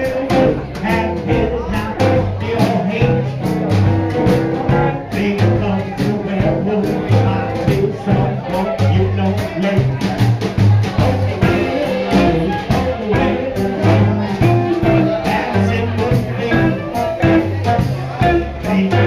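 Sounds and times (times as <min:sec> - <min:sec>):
guitar: 0:00.0 - 0:19.0
plucked bass line: 0:00.0 - 0:19.0
swing band playing jazz: 0:00.0 - 0:19.0.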